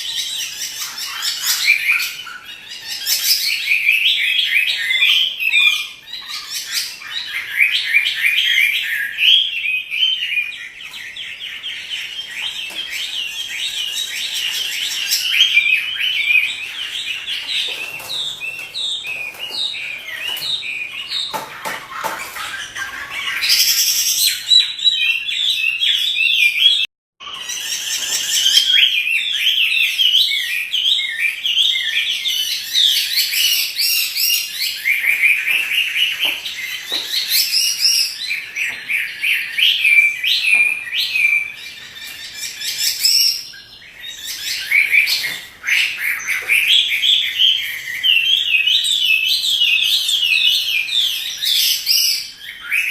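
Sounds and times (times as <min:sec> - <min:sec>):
bird singing whistled phrases: 0:22.4 - 0:52.9.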